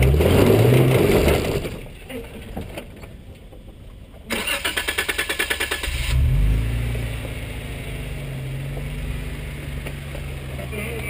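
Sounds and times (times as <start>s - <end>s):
engine revving and idling: 0.0s - 1.8s, 4.4s - 11.0s
starter motor cranking: 4.3s - 6.2s.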